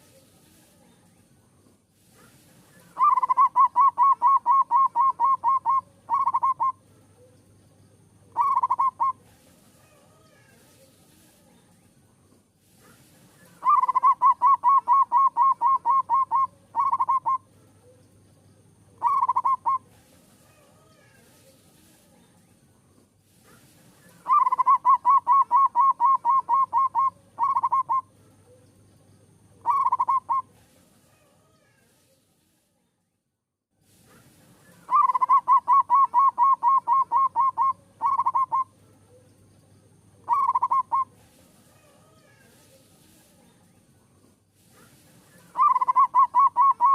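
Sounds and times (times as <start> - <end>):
dove cooing: 2.8 - 7.3, 8.3 - 9.2, 13.5 - 17.5, 19.0 - 19.9, 24.2 - 28.6, 29.6 - 30.5, 34.8 - 39.2, 40.2 - 41.2, 45.4 - 46.9.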